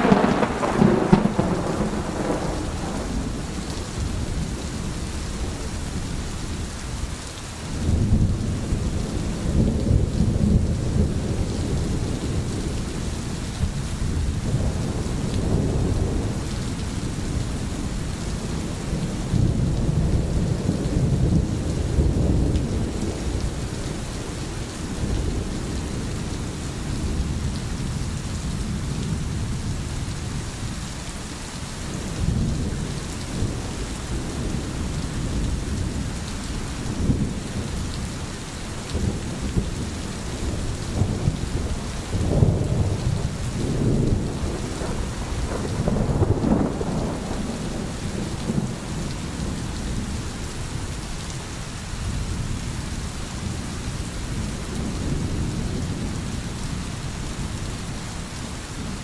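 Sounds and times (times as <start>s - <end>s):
thunderclap: 0.0s - 3.6s, 40.4s - 49.6s
rolling thunder: 0.0s - 6.2s, 7.8s - 30.4s, 38.7s - 50.8s
steady rain: 0.0s - 59.0s.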